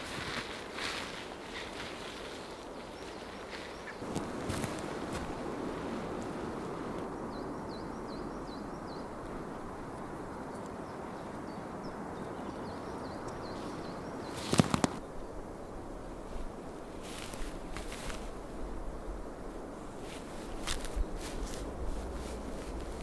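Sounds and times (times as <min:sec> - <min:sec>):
outdoor background rush: 0:00.0 - 0:23.0
small bird chirping: 0:02.4 - 0:04.9, 0:12.4 - 0:15.0.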